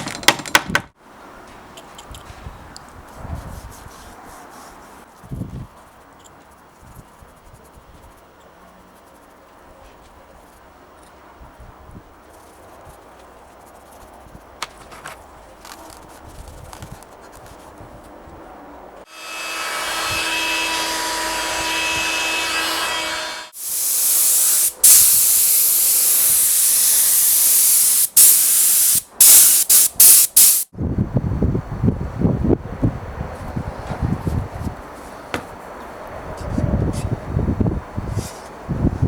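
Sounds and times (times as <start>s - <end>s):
compressed air hissing: 23.6s - 30.7s.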